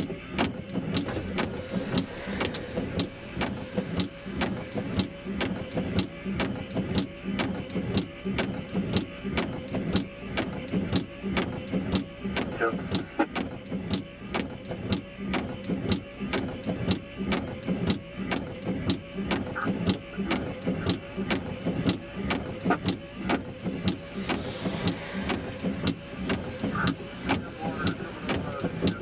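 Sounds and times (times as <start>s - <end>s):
steady even clicking: 0.0s - 29.0s
radio static: 12.5s - 13.3s, 19.5s - 21.2s, 22.5s - 29.0s.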